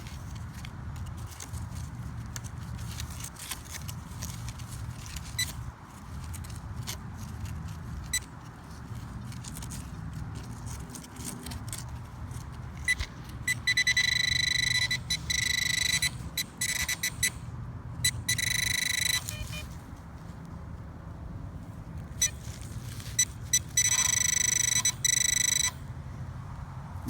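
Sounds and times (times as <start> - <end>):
metal detector buzzy tone: 12.8 - 19.7, 22.2 - 25.8.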